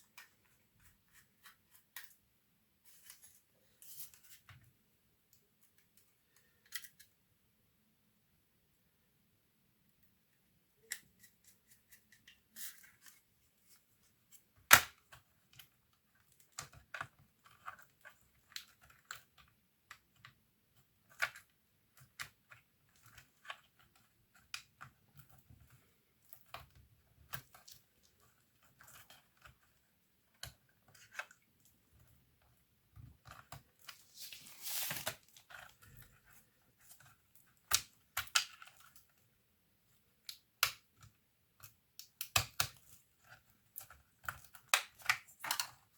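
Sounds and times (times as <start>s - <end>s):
scraping rustle: 34.0s - 35.2s.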